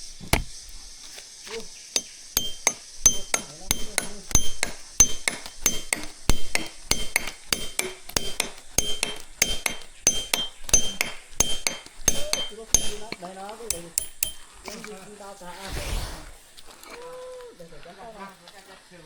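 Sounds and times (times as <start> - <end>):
metal striking metal: 2.0 - 15.0.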